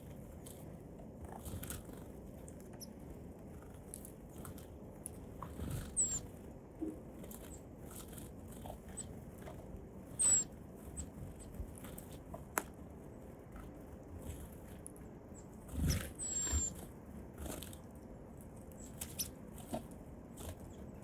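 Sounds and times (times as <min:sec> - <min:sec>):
high downward bird calls: 0:05.9 - 0:06.2, 0:10.1 - 0:10.5, 0:15.9 - 0:16.8.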